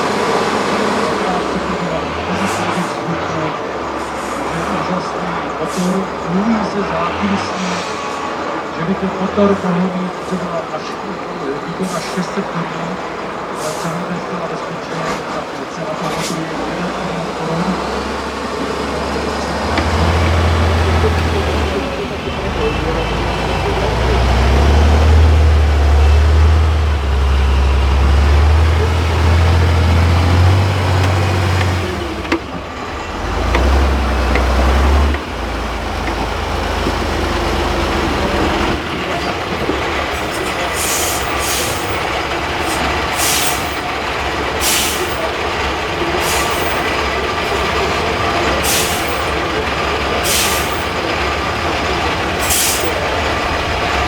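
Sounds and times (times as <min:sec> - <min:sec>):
truck diesel engine labouring: 0:00.0 - 0:54.0
compressed air hisses: 0:40.1 - 0:42.0, 0:42.6 - 0:43.8, 0:44.6 - 0:45.2, 0:50.2 - 0:50.9.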